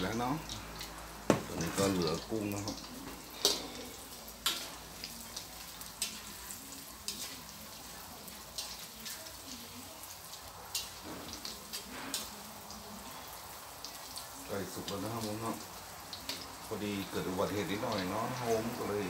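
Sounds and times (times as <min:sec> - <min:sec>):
shrimp sizzling in hot oil: 0:00.0 - 0:19.0.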